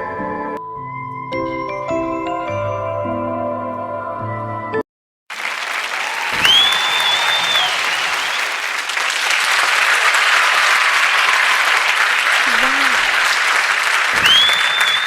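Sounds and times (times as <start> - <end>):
loud whistle: 5.3 - 9.4, 10.0 - 15.0
crowd applauding and cheering: 5.3 - 15.0.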